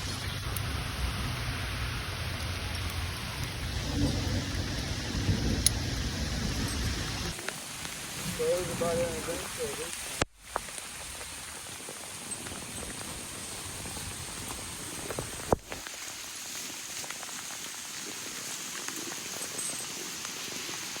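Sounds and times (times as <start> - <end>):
rain hissing with drop taps: 0.0 - 21.0.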